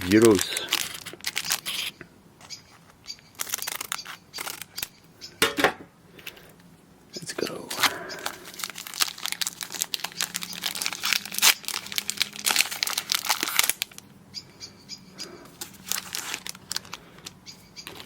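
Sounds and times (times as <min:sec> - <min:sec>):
foil wrapper tearing and crinkling: 0:00.0 - 0:02.0, 0:03.0 - 0:04.9, 0:07.8 - 0:14.0, 0:15.6 - 0:18.0.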